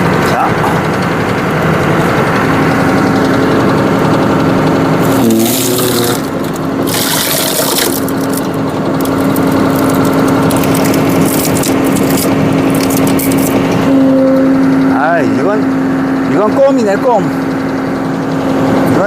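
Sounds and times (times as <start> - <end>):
tractor engine humming: 0.0 - 19.0
hydraulic hissing: 5.0 - 13.9.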